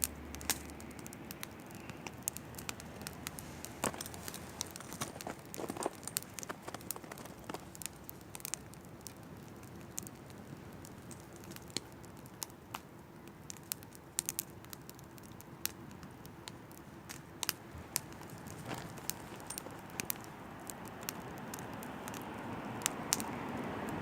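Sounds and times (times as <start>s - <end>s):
campfire crackling and popping: 0.0s - 24.0s
low fire hiss: 0.0s - 24.0s.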